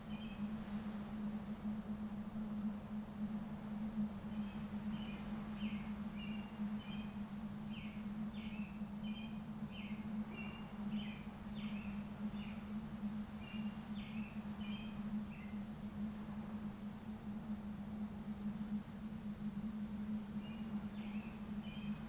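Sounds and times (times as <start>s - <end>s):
rushing background hiss: 0.0s - 22.0s
steady low hum: 0.0s - 22.0s
bird chirping: 13.4s - 15.6s, 20.4s - 22.0s.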